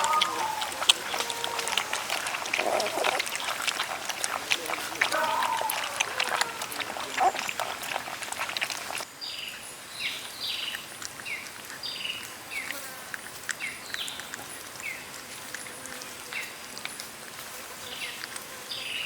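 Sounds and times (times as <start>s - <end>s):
puppies whimpering: 0.0s - 9.0s.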